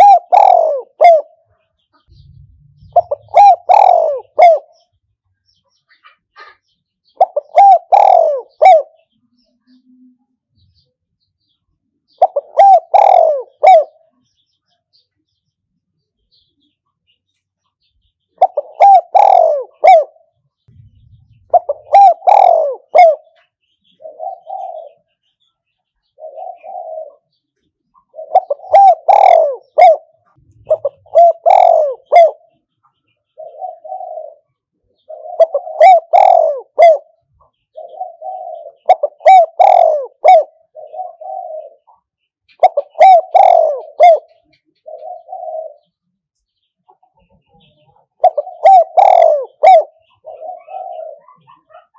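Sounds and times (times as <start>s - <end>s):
dove cooing: 0.0s - 4.9s, 6.4s - 9.1s, 12.1s - 14.2s, 18.4s - 25.2s, 26.0s - 27.4s, 28.0s - 32.7s, 33.3s - 46.0s, 46.9s - 51.9s.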